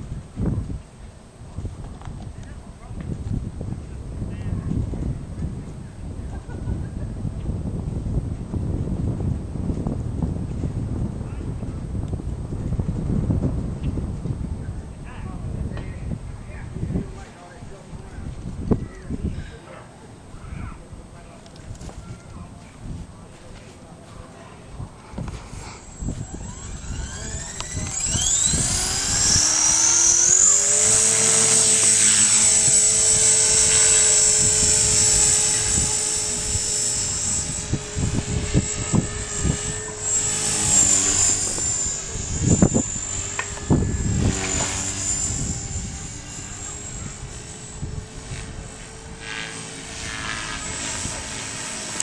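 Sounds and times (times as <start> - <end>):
rc helicopter motor whine: 24.3 - 52.0.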